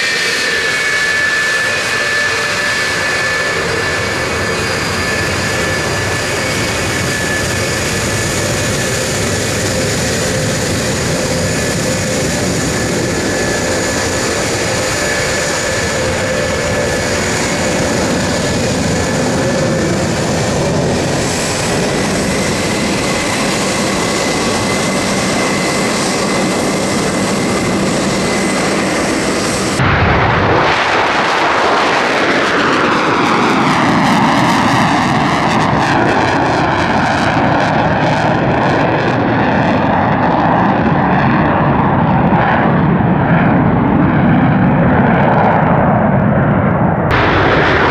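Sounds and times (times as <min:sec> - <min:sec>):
aircraft passing overhead: 0:00.0 - 0:47.9
military aircraft engines roaring: 0:00.0 - 0:47.9.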